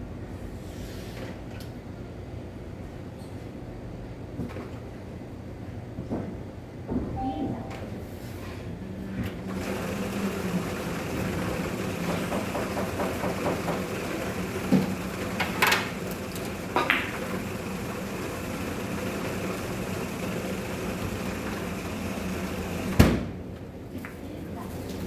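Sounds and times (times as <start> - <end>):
low mechanical hum: 0.0 - 25.0
billiard balls clicking: 12.0 - 17.6.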